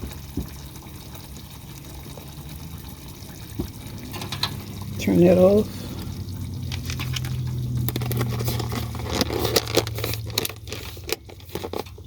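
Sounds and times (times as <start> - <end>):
steady low hum: 2.3 - 9.3
spoon scraping against pot: 6.7 - 12.0.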